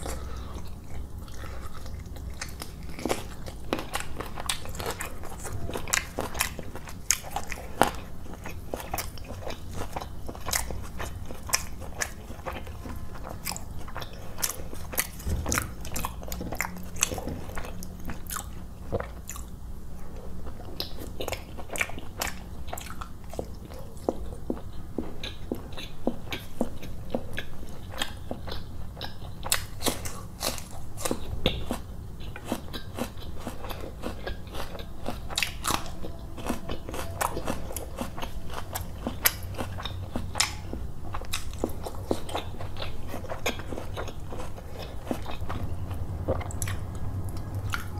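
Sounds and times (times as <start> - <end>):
person chewing food: 0.0 - 47.9
crunch: 25.2 - 45.7.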